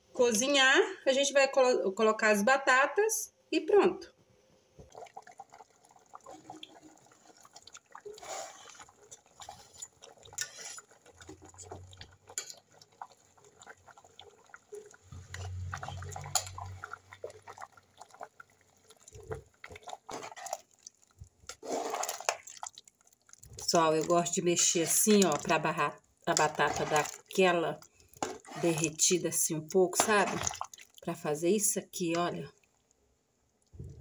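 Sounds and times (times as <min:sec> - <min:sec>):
pot and utensils clicking: 0:12.3 - 0:12.7, 0:15.3 - 0:16.8.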